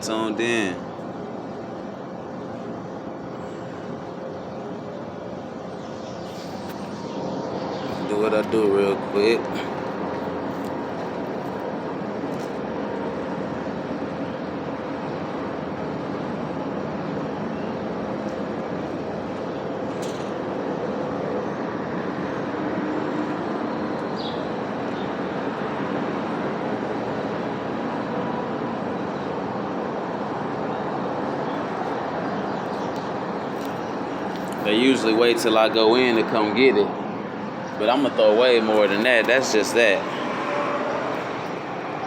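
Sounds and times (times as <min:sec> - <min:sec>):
faint constant hums: 0:00.0 - 0:42.0
passing road traffic: 0:00.0 - 0:42.0.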